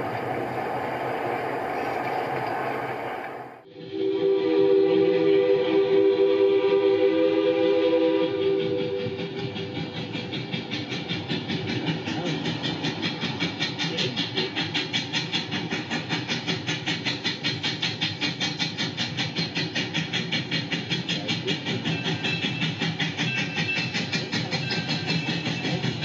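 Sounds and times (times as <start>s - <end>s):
moving train rhythmic beat: 0.0s - 26.0s
train whistle chord: 3.7s - 9.6s.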